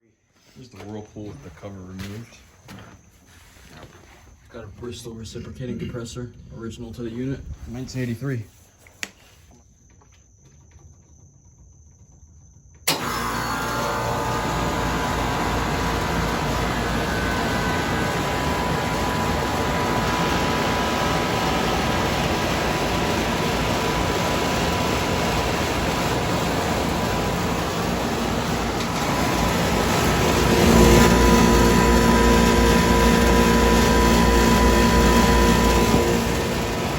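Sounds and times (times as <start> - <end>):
heat pump mechanical hum: 12.8 - 36.9.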